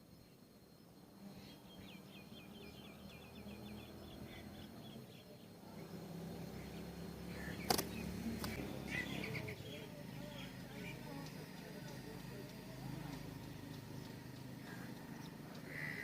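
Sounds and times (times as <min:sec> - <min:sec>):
small bird chirping: 0:00.0 - 0:16.0
sharp click: 0:07.7 - 0:08.6.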